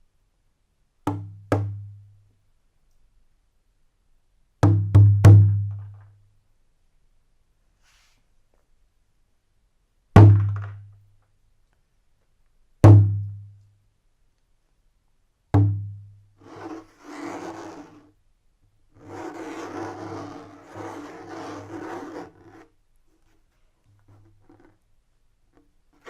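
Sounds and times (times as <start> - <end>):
scraping or rubbing: 16.4 - 18.1, 19.0 - 24.8.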